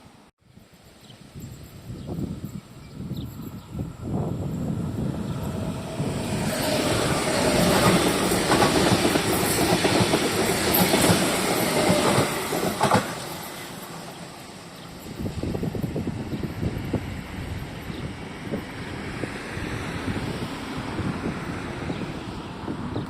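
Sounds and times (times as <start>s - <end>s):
train wheels clattering over rail joints: 6.6s - 14.2s.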